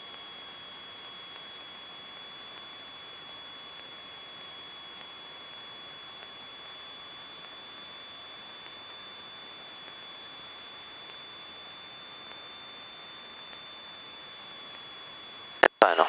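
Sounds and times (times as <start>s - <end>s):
high-pitched whine: 0.0s - 16.0s
faint tick: 6.2s - 6.4s, 8.6s - 8.8s, 9.8s - 10.0s, 12.2s - 12.4s.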